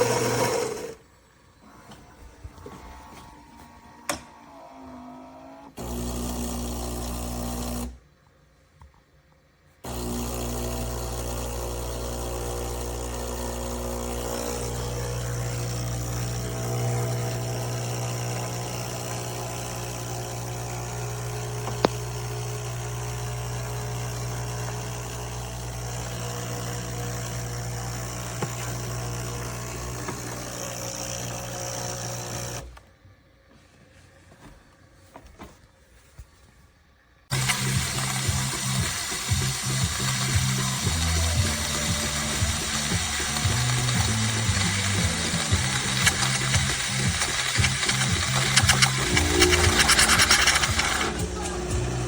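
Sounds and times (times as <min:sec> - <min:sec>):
espresso machine humming: 0:00.0 - 0:01.0, 0:09.9 - 0:32.7, 0:37.3 - 0:52.0.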